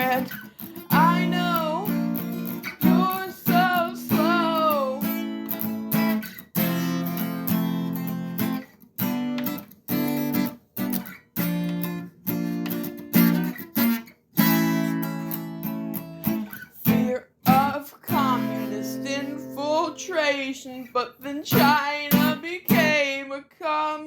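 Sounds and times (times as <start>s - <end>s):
person singing: 0.0s - 5.5s, 16.8s - 24.0s
acoustic guitar strumming chords: 0.0s - 20.4s, 21.5s - 23.0s.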